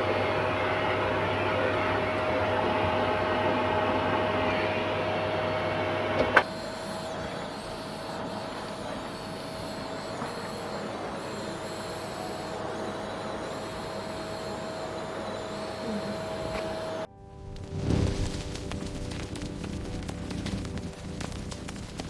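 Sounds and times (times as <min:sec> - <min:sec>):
vacuum cleaner motor running: 0:00.0 - 0:17.1.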